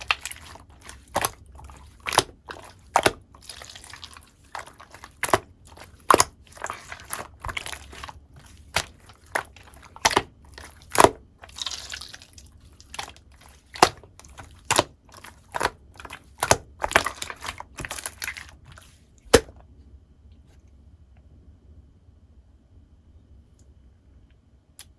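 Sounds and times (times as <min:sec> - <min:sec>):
slime squished by hand: 0:00.0 - 0:19.6.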